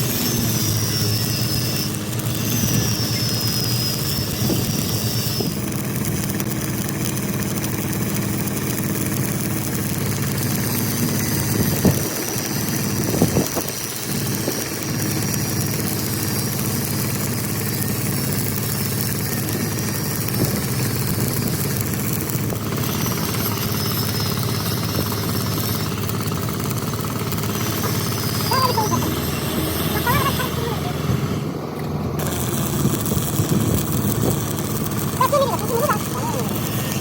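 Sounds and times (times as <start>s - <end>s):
engine idling: 0.0s - 37.0s.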